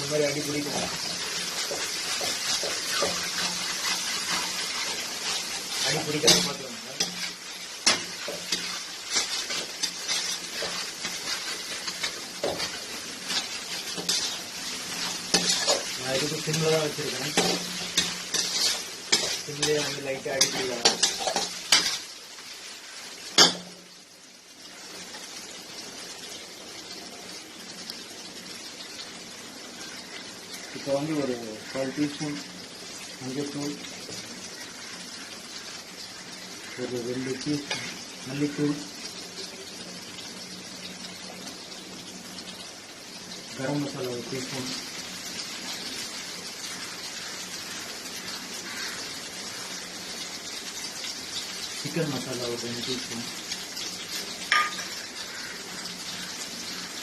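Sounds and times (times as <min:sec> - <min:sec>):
chicken sizzling: 0:00.0 - 0:57.0
utensil scraping a pan: 0:00.6 - 0:22.0
utensil striking a pan: 0:17.3 - 0:22.0, 0:54.5 - 0:55.0.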